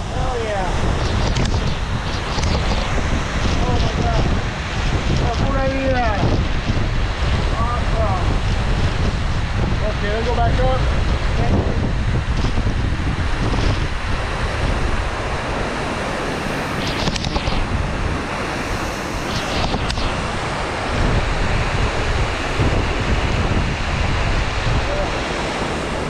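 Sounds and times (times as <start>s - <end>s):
wind rumbling on microphone: 0.0s - 26.0s
waterfall rushing: 9.8s - 26.0s.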